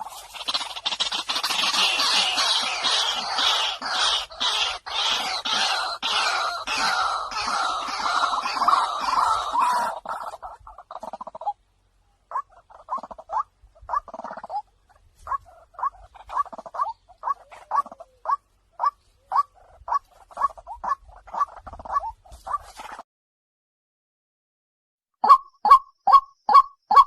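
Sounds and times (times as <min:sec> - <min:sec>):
waterhen calling: 0:00.0 - 0:11.6, 0:12.3 - 0:22.9.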